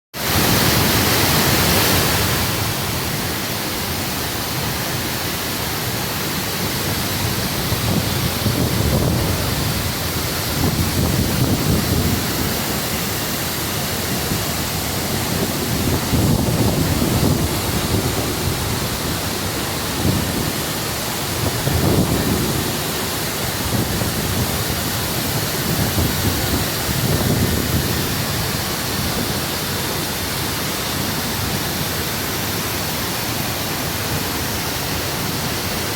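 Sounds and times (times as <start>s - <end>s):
waterfall rushing: 0.2s - 35.9s
low rumbling surges: 4.6s - 30.4s.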